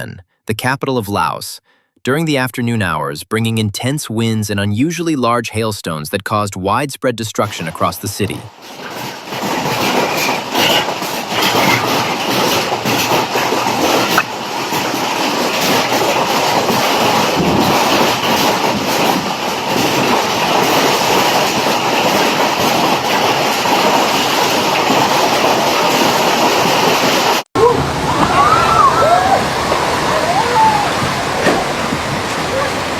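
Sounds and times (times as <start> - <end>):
rain: 8.5 - 32.9
hail clattering on hard surfaces: 8.6 - 32.9.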